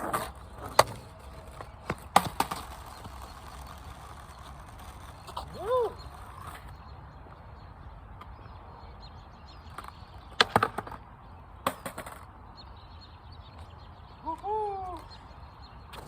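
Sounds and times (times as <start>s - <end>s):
skateboard clacking on pavement: 0.0s - 6.7s, 9.6s - 12.3s.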